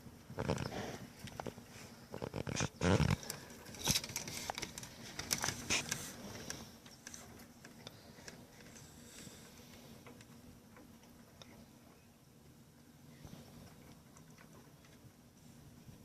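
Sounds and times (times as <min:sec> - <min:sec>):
birds chirping and clicking: 0:00.4 - 0:12.1.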